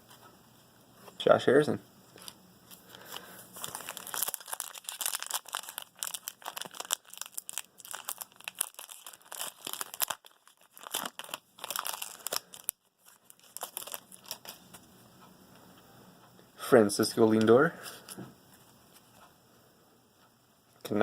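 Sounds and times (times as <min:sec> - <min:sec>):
foil wrapper crinkling: 0:02.1 - 0:14.8.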